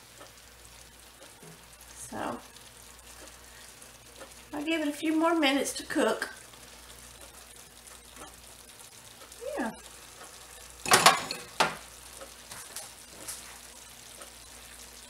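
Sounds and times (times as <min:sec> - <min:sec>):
food sizzling in a frying pan: 0:00.0 - 0:15.0
utensil striking a pan: 0:10.8 - 0:11.8.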